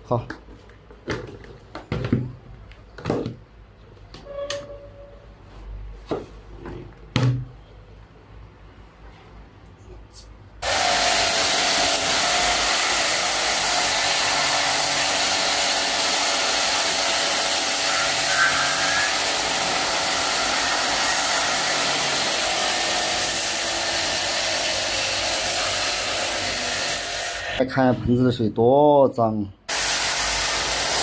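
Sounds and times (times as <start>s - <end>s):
pressure washer spray hiss: 10.6s - 19.4s, 25.1s - 27.6s, 29.7s - 31.0s.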